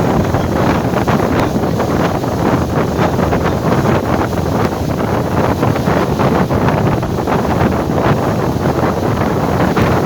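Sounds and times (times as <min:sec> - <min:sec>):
water splashes: 0:00.0 - 0:10.0
wind buffeting microphone: 0:00.0 - 0:10.0.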